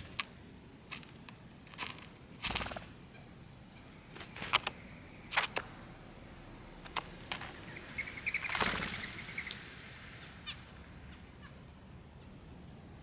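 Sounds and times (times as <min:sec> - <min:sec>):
wings fluttering: 0:00.0 - 0:05.9, 0:06.8 - 0:11.6
bird chirp: 0:00.9 - 0:12.5
bird rattling call: 0:01.7 - 0:03.2, 0:03.8 - 0:05.6, 0:07.5 - 0:11.6.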